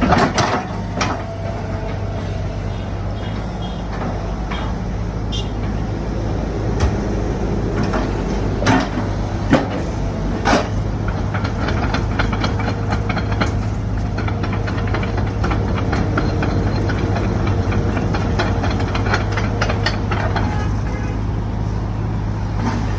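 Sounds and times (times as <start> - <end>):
excavator diesel engine running: 0.0 - 22.9
sharp knocks: 6.7 - 9.8.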